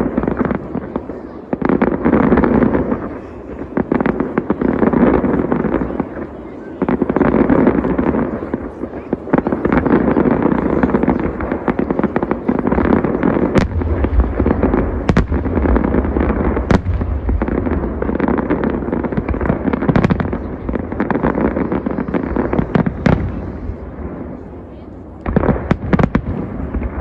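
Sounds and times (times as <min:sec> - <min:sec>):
fireworks banging and crackling: 0:00.0 - 0:27.0
sharp firework cracks: 0:07.1 - 0:24.4, 0:25.2 - 0:27.0.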